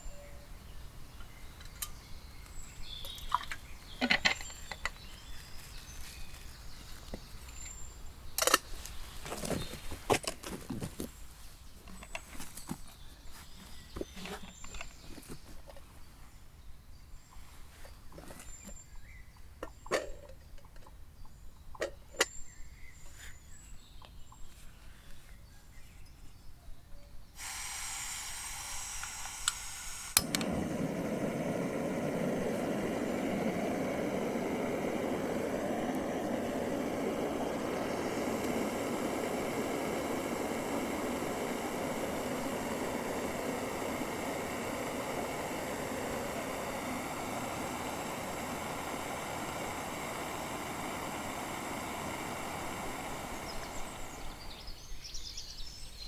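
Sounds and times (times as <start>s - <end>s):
igniter click: 27.4s - 33.5s
gas burner rushing: 27.4s - 54.8s
gas hissing from valve: 27.4s - 55.1s.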